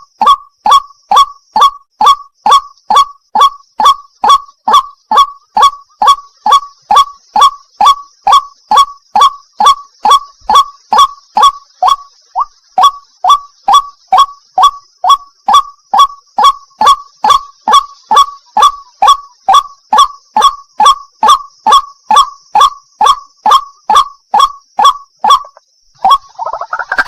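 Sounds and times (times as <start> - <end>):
waterhen calling: 0.0 - 21.0, 21.7 - 27.0.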